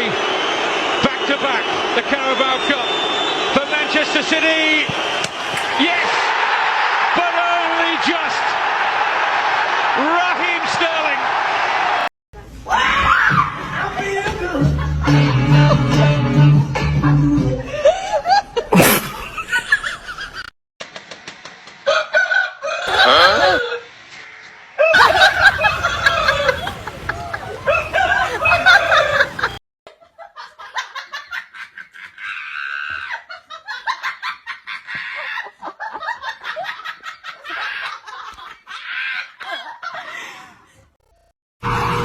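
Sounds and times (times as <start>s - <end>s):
loud squawking bird calls: 25.0s - 29.6s.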